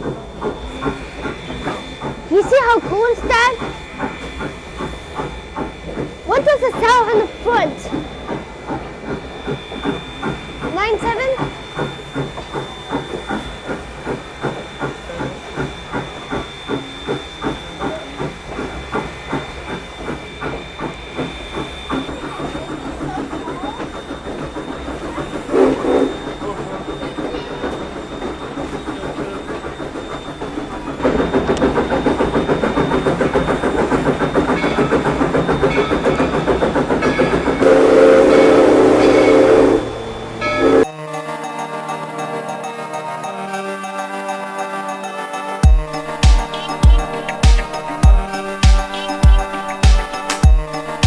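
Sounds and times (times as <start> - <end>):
hissing steam: 0.0 - 51.0
steam locomotive chuffing: 0.0 - 51.0
steam whistle chord: 34.5 - 51.0.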